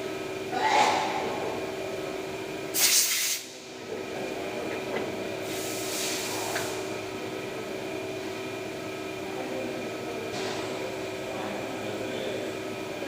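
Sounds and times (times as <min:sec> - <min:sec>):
hiss: 0:02.7 - 0:03.5, 0:05.5 - 0:06.7.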